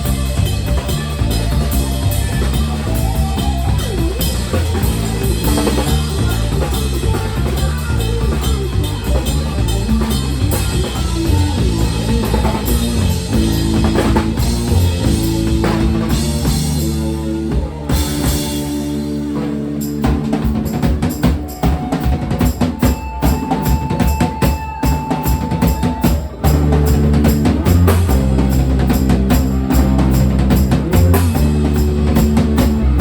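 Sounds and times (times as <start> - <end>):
drum kit strokes: 0.0 - 33.0.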